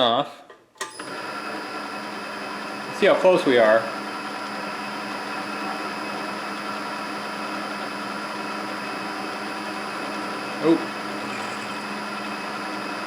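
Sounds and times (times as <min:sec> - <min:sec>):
milling machine motor hum: 0:09.6 - 0:13.0.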